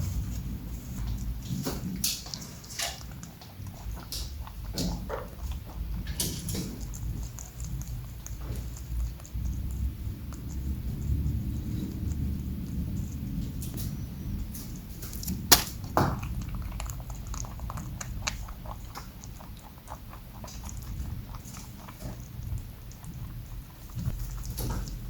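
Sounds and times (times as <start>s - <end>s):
rabbits chewing crunchily: 0.0s - 25.0s
sharp knock: 15.5s - 15.8s.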